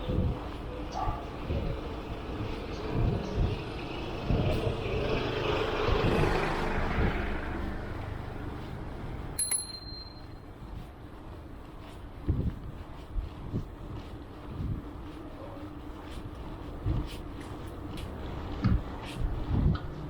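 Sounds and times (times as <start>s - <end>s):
vehicle passing rumble: 0.0s - 9.4s
road and traffic noise: 0.0s - 20.0s
short high ring: 9.4s - 10.4s.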